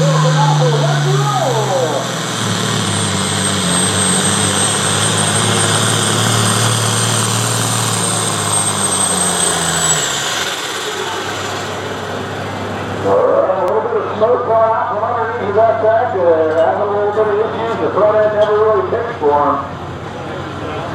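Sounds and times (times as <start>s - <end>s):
pulling tractor engine under load: 0.0s - 13.1s.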